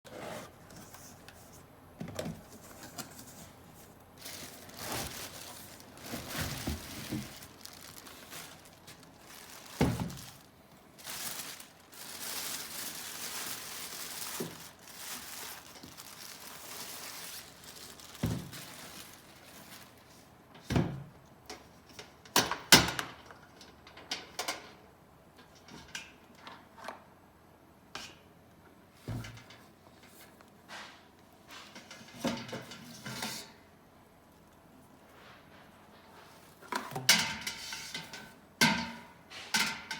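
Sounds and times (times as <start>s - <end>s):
rustling: 2.4s - 20.3s, 34.3s - 37.0s
thunks and knocks of objects: 18.2s - 18.6s.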